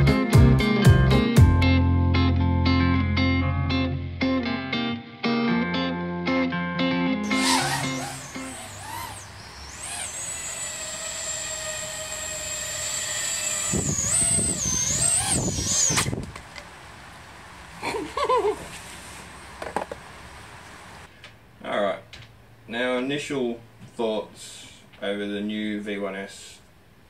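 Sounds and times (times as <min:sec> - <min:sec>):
drone motors whining: 0:07.2 - 0:16.4.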